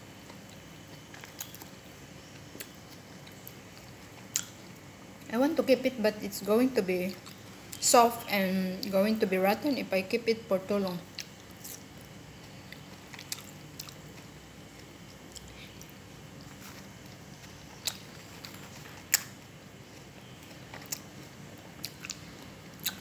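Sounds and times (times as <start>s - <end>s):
person chewing fruit: 0.2s - 5.3s, 7.2s - 7.5s, 11.1s - 23.0s.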